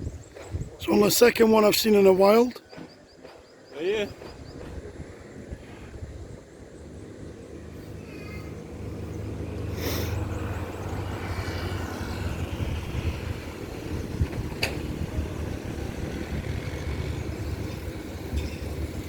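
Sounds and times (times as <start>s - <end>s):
low engine rumble: 4.2s - 19.0s.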